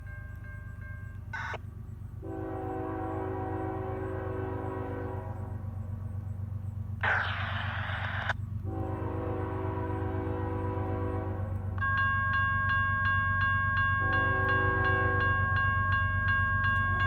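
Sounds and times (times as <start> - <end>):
low rumble of train: 0.0 - 17.0
locomotive air horn: 2.2 - 5.7, 8.6 - 11.8, 14.0 - 15.4.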